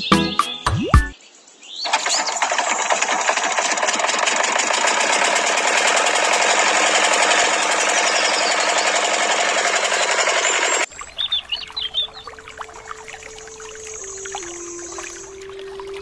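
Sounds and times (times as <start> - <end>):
small motor rattling: 1.9 - 10.9.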